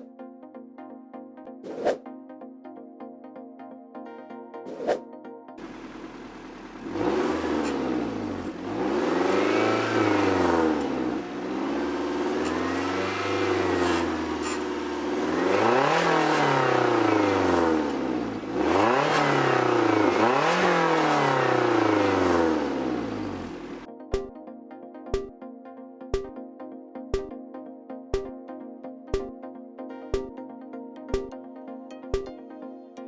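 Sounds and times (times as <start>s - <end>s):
sports car engine revving: 5.6s - 23.9s.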